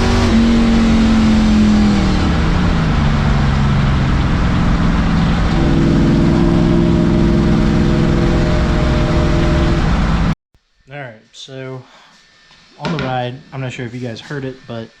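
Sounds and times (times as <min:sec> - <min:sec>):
car engine and exhaust running: 0:00.0 - 0:10.4.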